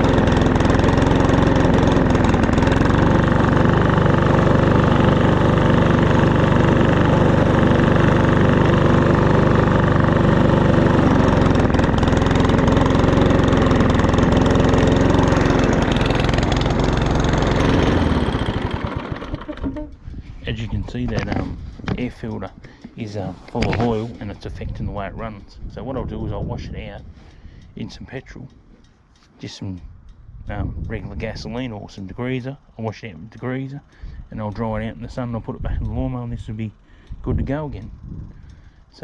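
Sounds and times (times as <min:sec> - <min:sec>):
push mower engine running: 0:00.0 - 0:24.5.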